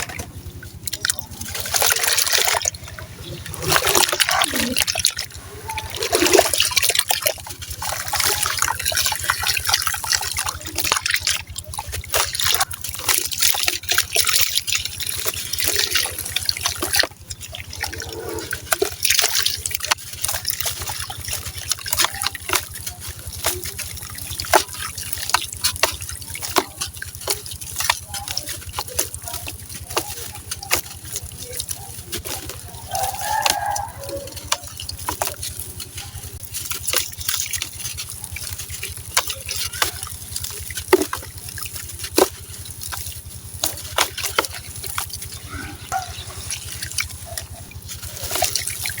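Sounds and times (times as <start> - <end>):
gritty crackling and fizzing: 0.0 - 49.0
steady low hum: 33.8 - 49.0.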